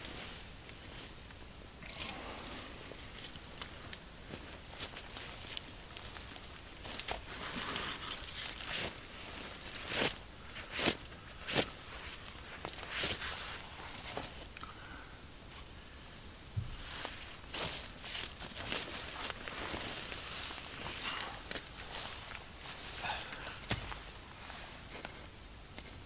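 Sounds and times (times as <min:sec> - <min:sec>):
dry leaves rustling and crunching: 0:01.8 - 0:14.5, 0:16.9 - 0:25.0
twigs snapping: 0:03.1 - 0:10.2.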